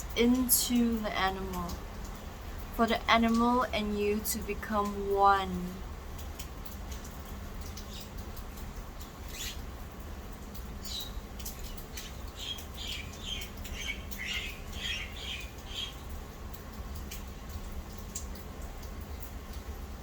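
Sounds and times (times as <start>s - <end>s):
low steady hum: 0.0s - 20.0s
small birds chirping: 7.6s - 8.2s, 9.0s - 9.7s, 10.8s - 16.1s.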